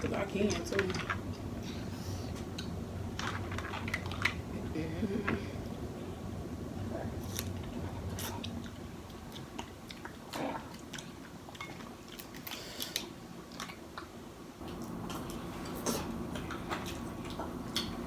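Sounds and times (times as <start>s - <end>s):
chewing and mouth sounds: 7.2s - 18.0s.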